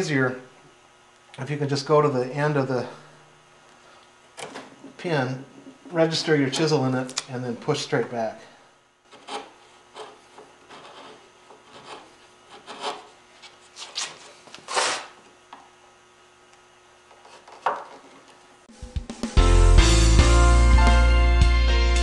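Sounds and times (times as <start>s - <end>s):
chisel scraping wood: 9.1s - 15.1s, 17.1s - 18.3s
music: 18.7s - 22.0s.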